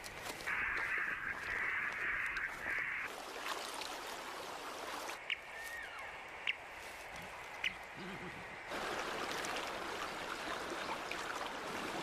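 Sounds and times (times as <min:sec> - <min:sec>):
crow cawing: 0:00.5 - 0:03.1.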